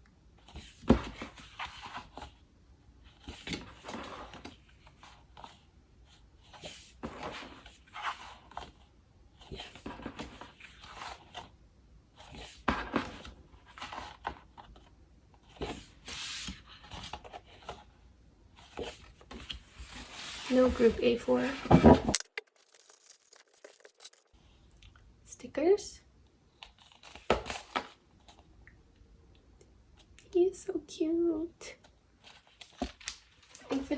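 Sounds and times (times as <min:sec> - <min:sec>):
paper and plastic rustling: 0:18.6 - 0:24.6.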